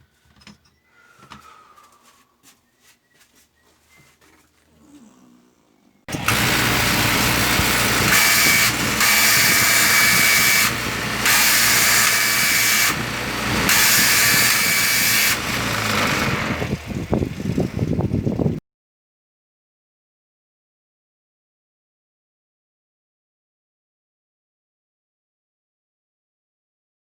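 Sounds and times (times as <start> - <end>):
fabric cutting machine running: 6.1 - 18.2.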